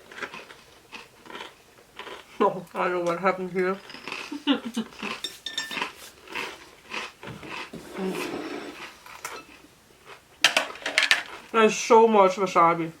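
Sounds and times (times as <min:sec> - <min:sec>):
utensils clinking against dishes: 0:05.0 - 0:06.1, 0:09.2 - 0:09.6.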